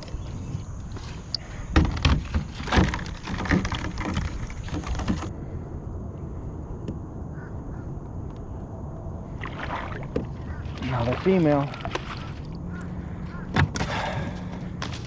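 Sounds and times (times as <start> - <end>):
gear knocking and scraping in kayak: 0.0 - 5.3, 9.4 - 15.0
wind rumble on microphone: 0.0 - 15.0.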